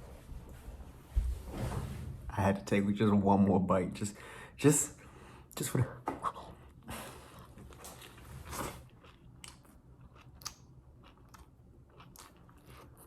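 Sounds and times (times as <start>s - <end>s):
person chewing food: 6.7s - 13.0s
wet mouth smacks and clicks: 10.4s - 11.4s.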